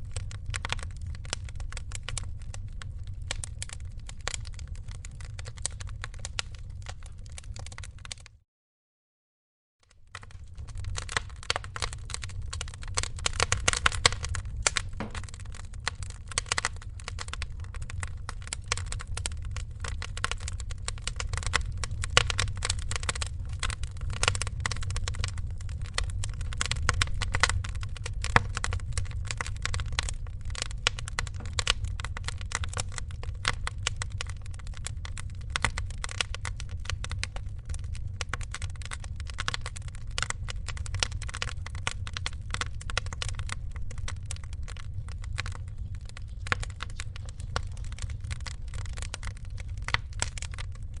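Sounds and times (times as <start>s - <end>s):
wood fire crackling: 0.0s - 8.3s, 9.9s - 51.0s
steady low rumble: 10.1s - 51.0s.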